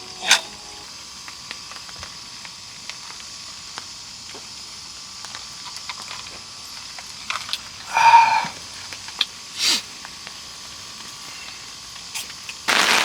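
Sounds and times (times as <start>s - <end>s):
steady hiss: 0.0s - 1.0s, 7.8s - 13.0s.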